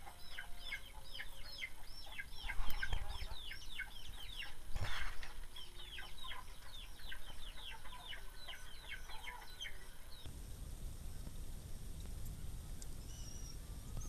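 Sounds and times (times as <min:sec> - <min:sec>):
chicks peeping: 0:00.0 - 0:10.3
low steady rumble: 0:05.4 - 0:14.0.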